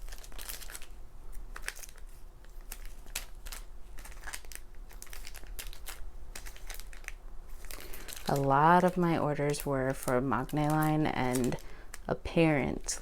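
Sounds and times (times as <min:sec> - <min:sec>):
photo cards tapping and rustling: 0:00.0 - 0:12.1.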